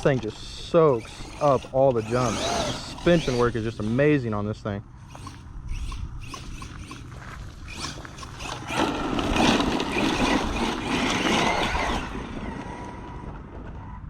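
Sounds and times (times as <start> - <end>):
rc truck motor and tyres: 0.0 - 14.0.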